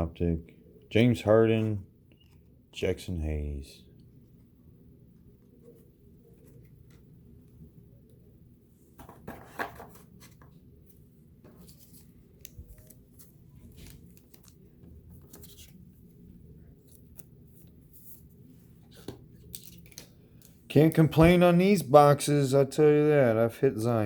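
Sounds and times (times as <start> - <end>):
cards and wrapper rustling: 11.5 - 15.9, 18.9 - 20.6.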